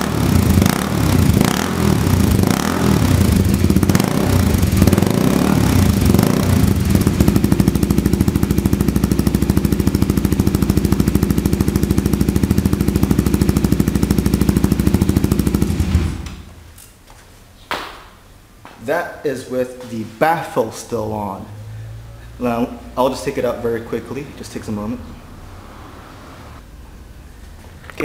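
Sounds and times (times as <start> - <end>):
motorcycle engine idling: 0.0 - 16.6.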